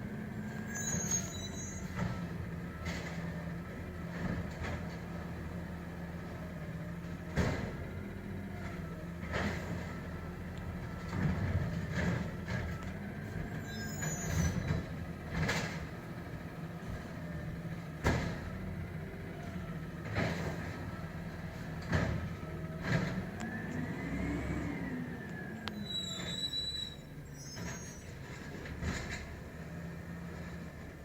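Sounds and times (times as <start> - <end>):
garbage truck engine running: 0.0 - 31.0
high squeal: 0.7 - 1.9, 13.6 - 14.7, 25.7 - 28.1
carts slamming hopper: 7.2 - 7.9, 10.9 - 13.4, 14.0 - 17.2, 17.8 - 18.9, 19.5 - 25.2.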